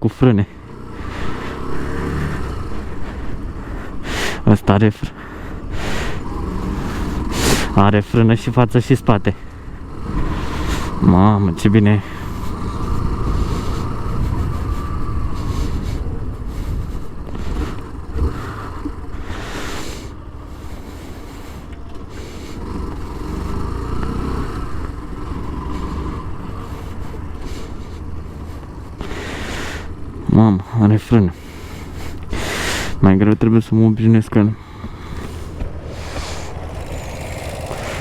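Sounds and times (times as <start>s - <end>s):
small motorcycle engine running: 0.4s - 38.0s
wind rushing over microphone: 9.8s - 20.2s, 34.5s - 38.0s.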